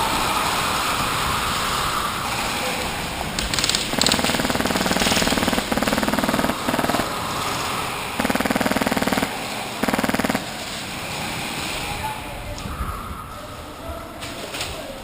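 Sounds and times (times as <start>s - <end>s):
airsoft gun firing bursts: 3.4s - 7.0s, 8.2s - 10.5s.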